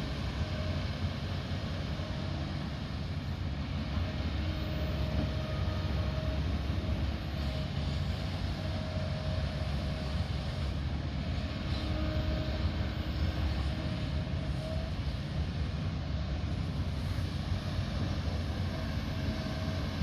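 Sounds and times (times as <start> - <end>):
faint thin whine: 0.0 - 20.0
heavy diesel machine rumbling: 0.0 - 20.0.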